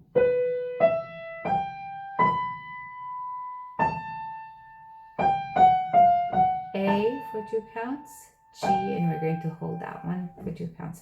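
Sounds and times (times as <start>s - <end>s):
slow piano melody: 0.0s - 10.6s.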